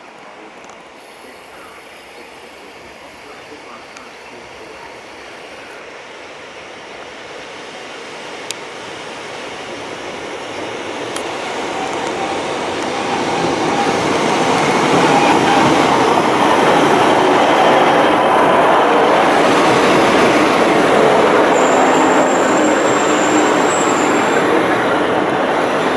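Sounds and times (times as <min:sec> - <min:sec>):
train engine and wheels rumbling: 0:00.0 - 0:25.9
high brake squeal: 0:11.4 - 0:14.4, 0:21.5 - 0:24.6.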